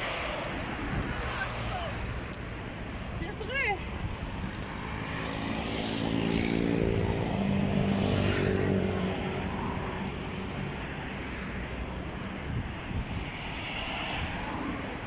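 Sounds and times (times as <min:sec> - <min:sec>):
vehicle engine passing by: 0:04.5 - 0:10.5.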